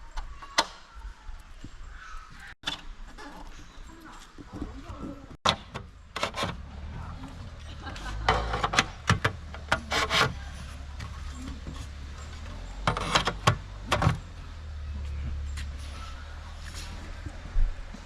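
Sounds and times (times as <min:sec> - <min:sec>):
objects knocking and rattling: 0:08.0 - 0:12.0.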